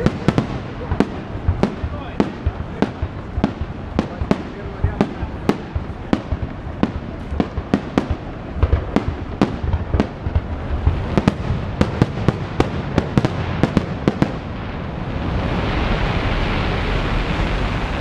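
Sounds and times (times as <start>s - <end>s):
fireworks bangs: 0.0s - 18.0s.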